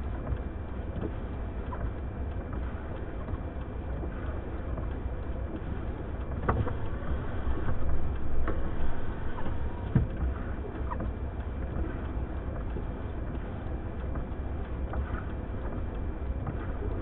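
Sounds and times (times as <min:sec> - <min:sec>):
blizzard wind rumbling: 0:06.0 - 0:10.8.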